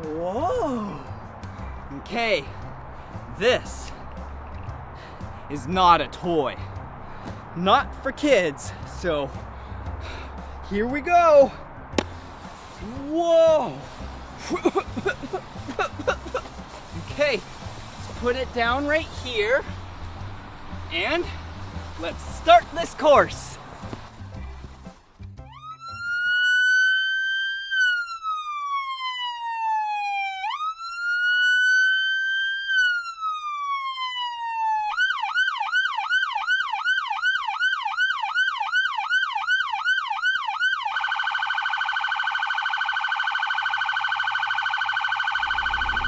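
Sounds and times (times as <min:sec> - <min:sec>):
electronic police siren: 0:25.4 - 0:46.0.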